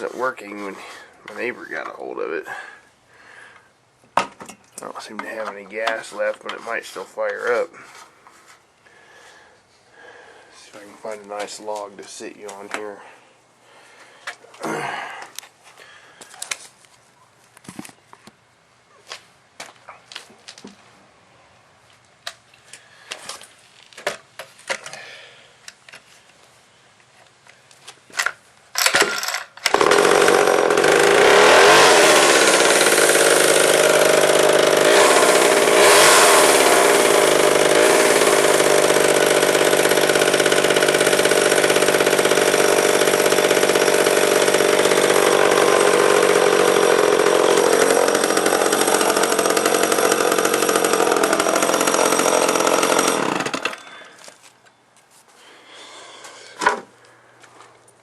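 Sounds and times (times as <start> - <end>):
chainsaw starter pulls: 28.8 - 54.4
chainsaw engine running: 29.6 - 54.3.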